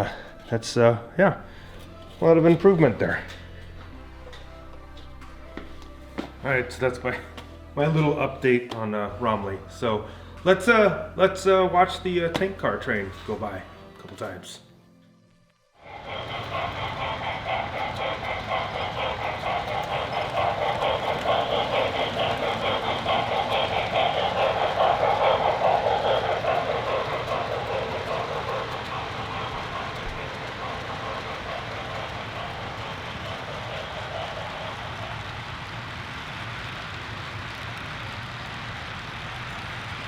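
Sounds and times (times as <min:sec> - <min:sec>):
model train wheels clicking: 0:15.8 - 0:40.0.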